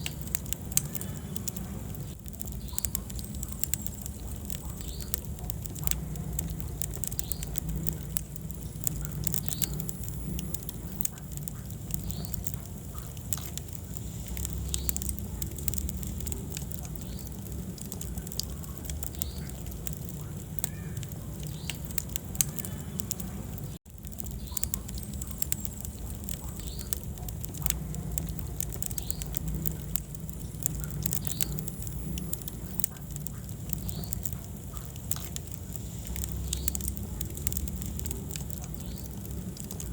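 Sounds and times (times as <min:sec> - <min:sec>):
fire pops and snaps: 0:00.0 - 0:39.9
low rumble of flames: 0:00.0 - 0:39.9.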